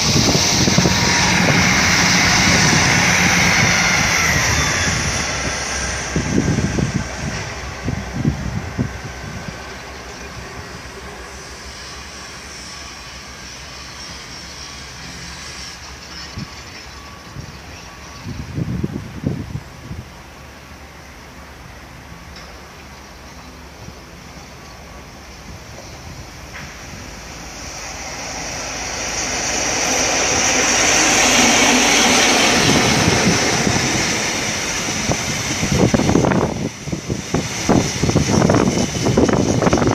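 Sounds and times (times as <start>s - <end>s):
train running: 0.0s - 39.9s
high hiss: 9.4s - 18.4s.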